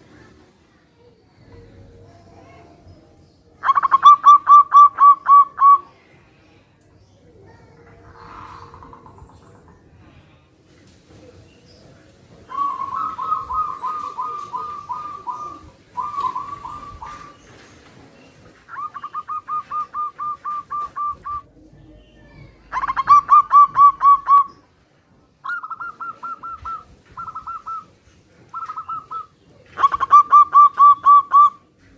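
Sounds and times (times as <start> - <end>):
doves cooing: 3.6 - 6.0, 7.8 - 10.1, 12.3 - 24.7, 25.4 - 31.9.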